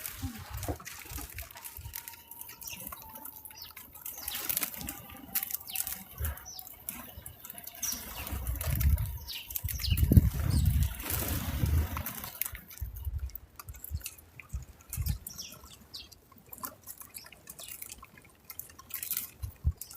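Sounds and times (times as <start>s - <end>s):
bird chirps: 2.0s - 11.0s
wind rumbling on microphone: 6.0s - 15.6s, 19.4s - 19.9s.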